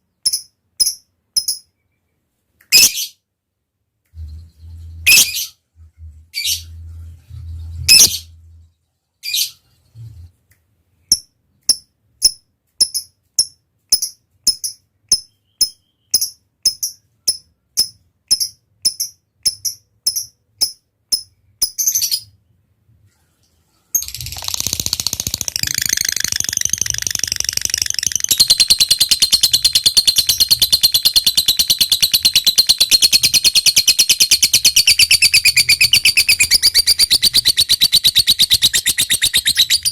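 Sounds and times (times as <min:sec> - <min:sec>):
lovebird chirps: 0:02.7 - 0:03.2, 0:04.1 - 0:05.6, 0:06.3 - 0:10.3, 0:11.1 - 0:22.4, 0:24.0 - 0:39.9
lovebird rapid chatter: 0:24.0 - 0:39.9.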